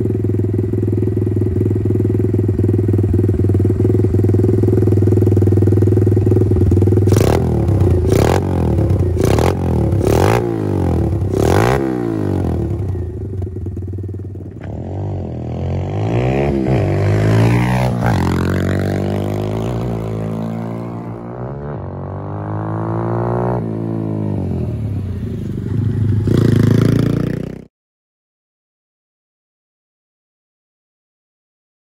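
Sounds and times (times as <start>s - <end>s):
pit bike engine revving: 6.4s - 13.9s, 14.5s - 24.4s.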